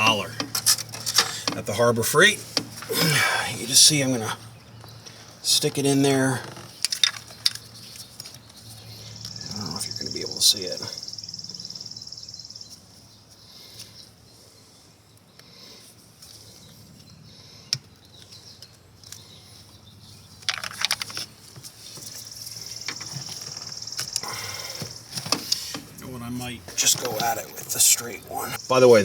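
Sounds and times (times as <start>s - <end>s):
clattering rattle: 6.7s - 7.7s, 20.4s - 21.3s.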